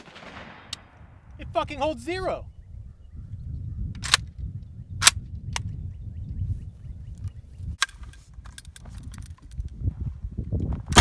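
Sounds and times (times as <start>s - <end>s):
sharp cracks: 0.0s - 0.9s.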